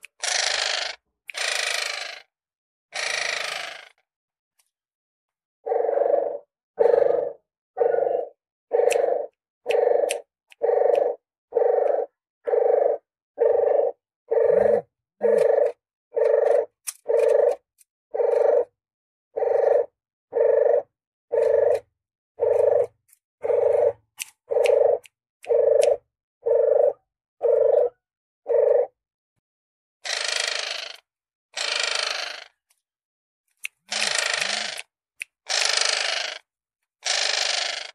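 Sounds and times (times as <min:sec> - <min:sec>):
dove cooing: 0:05.7 - 0:17.6, 0:18.2 - 0:18.7, 0:19.4 - 0:29.0.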